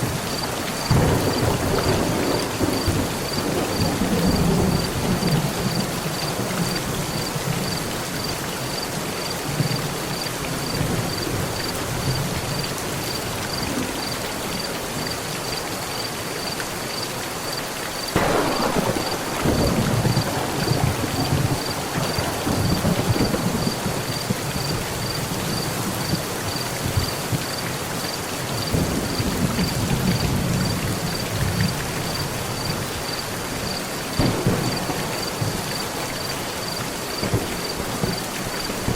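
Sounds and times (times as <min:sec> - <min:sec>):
heavy rain on a metal roof: 0:00.0 - 0:38.9
thunder rumbling: 0:00.9 - 0:07.9, 0:18.1 - 0:27.5, 0:28.6 - 0:32.8, 0:33.7 - 0:38.9.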